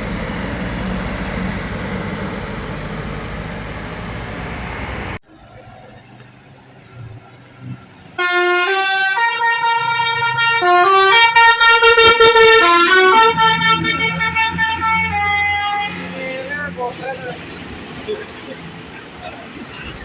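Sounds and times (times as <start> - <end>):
musical bus air horn: 8.2 - 16.4.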